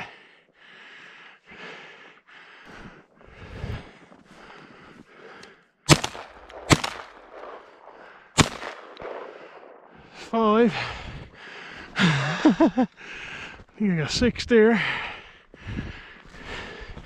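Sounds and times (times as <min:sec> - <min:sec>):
shotgun shots: 0:05.9 - 0:09.9.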